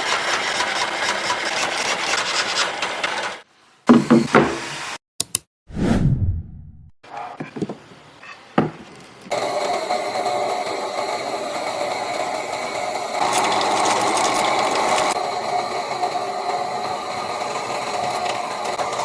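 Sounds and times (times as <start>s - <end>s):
small electric motor whining: 9.3s - 19.0s.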